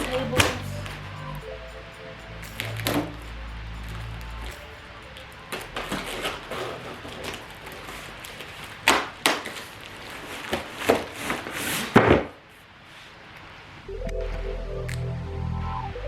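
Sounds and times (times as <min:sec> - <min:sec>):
packaging rustling: 0:05.5 - 0:11.9
sharp knocks of panels: 0:11.9 - 0:12.4.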